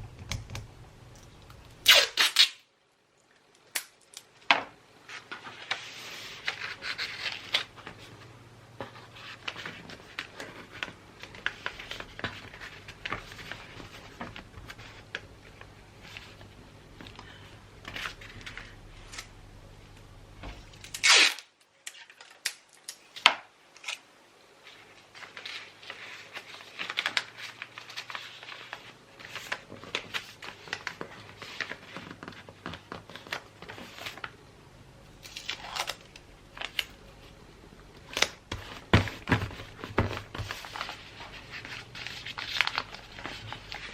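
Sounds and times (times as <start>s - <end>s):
wrapping paper rustling: 5.0s - 19.3s, 24.6s - 34.4s, 38.0s - 43.9s
paper tearing: 20.9s - 21.5s.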